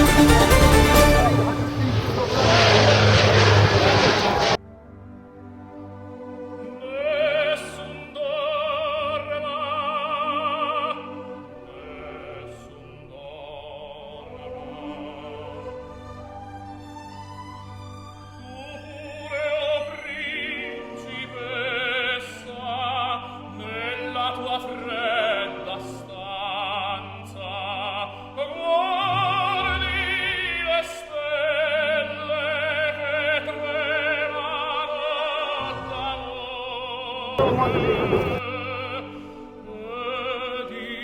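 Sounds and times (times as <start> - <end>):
operatic voice singing: 0.0 - 4.1, 6.7 - 16.0, 18.4 - 41.0
orchestral accompaniment: 0.0 - 8.4.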